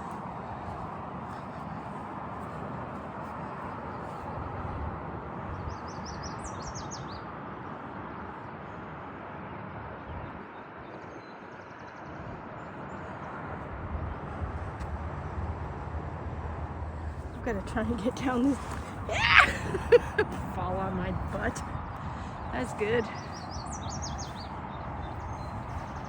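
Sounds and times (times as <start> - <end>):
low rumble: 13.5 - 19.4.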